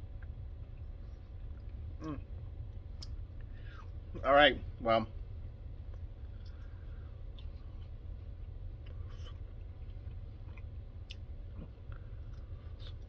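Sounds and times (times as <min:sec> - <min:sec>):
low hum: 0:00.0 - 0:13.0
person chewing food: 0:05.8 - 0:13.0.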